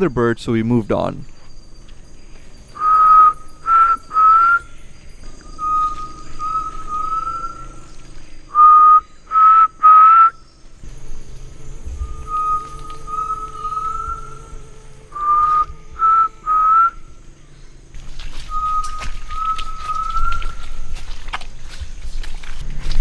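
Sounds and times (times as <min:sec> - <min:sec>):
wild bird whistling: 0:01.2 - 0:23.0
man whistling rising notes: 0:02.8 - 0:04.8, 0:05.5 - 0:07.9, 0:08.5 - 0:10.4, 0:11.9 - 0:17.1, 0:18.5 - 0:20.6.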